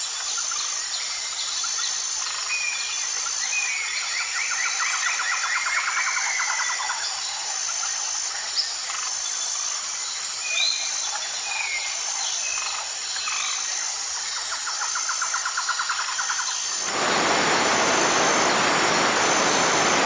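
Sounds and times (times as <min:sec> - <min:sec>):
insect-like chorus: 0:14.6 - 0:20.0.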